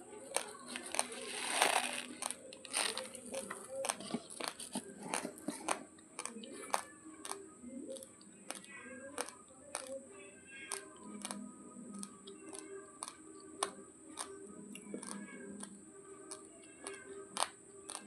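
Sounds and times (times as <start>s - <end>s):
rice grains crunching when chewed: 0.4s - 7.4s.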